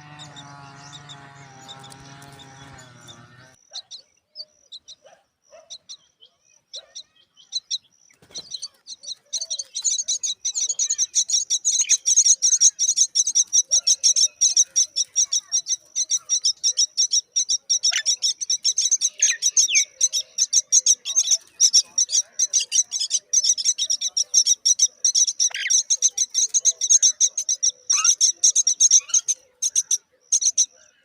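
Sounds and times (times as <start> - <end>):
lower downward-sliding bird calls: 0.0 - 3.6
baby birds begging chirps: 0.0 - 30.9.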